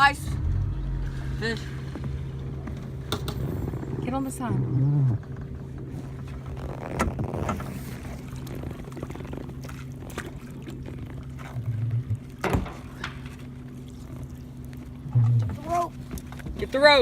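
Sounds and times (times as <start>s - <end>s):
boat motor hum: 0.0s - 17.0s
water splashing: 0.0s - 17.0s
knocks on boat: 12.1s - 12.9s.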